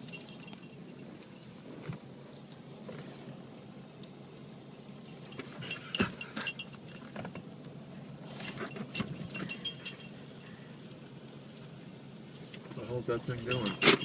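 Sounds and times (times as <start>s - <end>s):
steady low hum: 0.0s - 14.0s
small metal pieces jingling: 13.2s - 14.0s.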